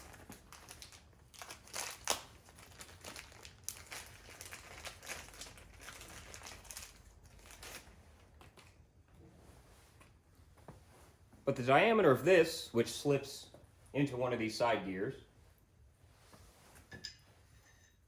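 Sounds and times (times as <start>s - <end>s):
wrapping crinkling and rustling: 0.0s - 11.3s.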